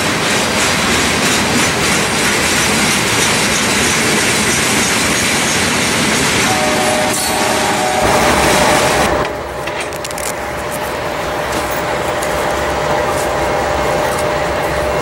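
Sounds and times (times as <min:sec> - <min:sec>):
distant train rumble: 0:00.0 - 0:15.0
freight cars rolling on rails: 0:00.0 - 0:15.0.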